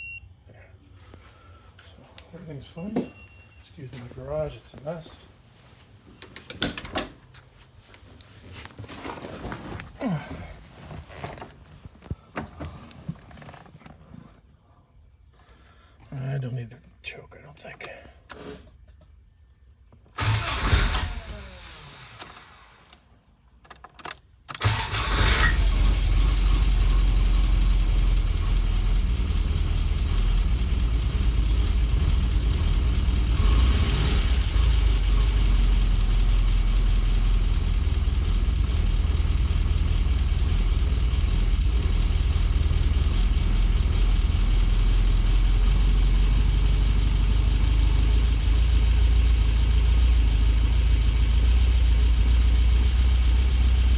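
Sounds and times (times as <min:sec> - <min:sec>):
car engine starting and idling: 0:19.9 - 0:53.9.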